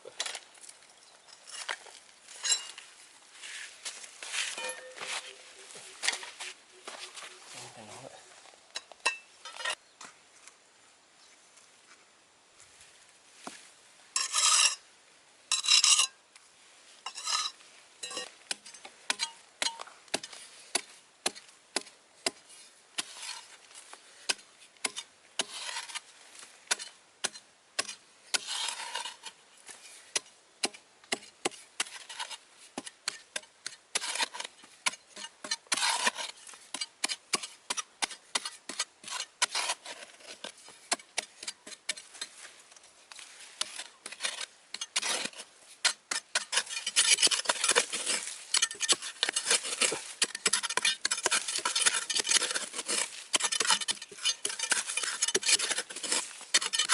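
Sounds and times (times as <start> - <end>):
hand tool scraping hard material: 17.1 - 23.6, 24.2 - 26.1, 26.7 - 56.9.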